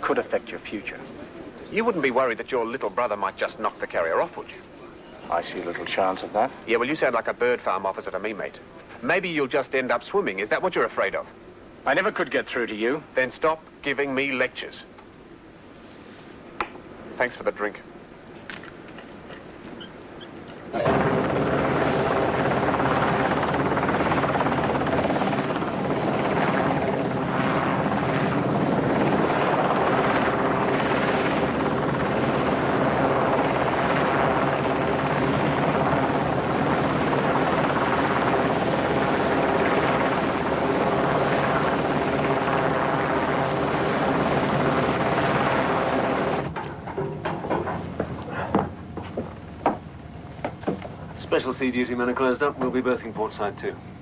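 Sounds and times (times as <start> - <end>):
aircraft engine drone: 19.9 - 54.0.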